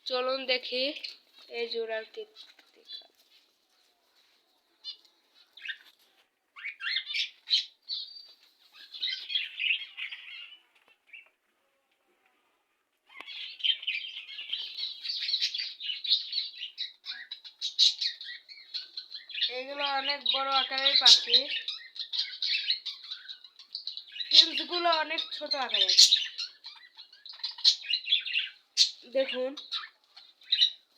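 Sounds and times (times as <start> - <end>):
budgerigars chattering: 13.3 - 30.8.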